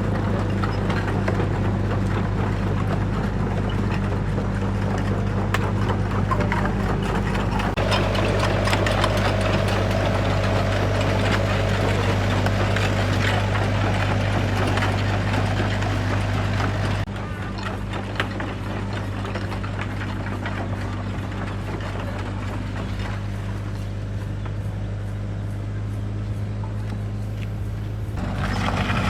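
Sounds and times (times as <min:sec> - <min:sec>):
engine humming: 0:00.0 - 0:29.0
high steady whine: 0:07.6 - 0:17.1.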